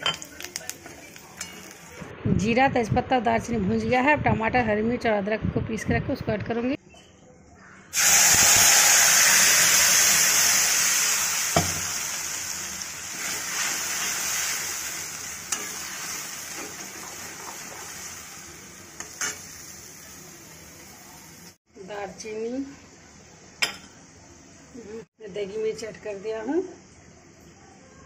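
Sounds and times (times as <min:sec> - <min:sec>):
paste sizzling in hot oil: 0:08.0 - 0:21.6.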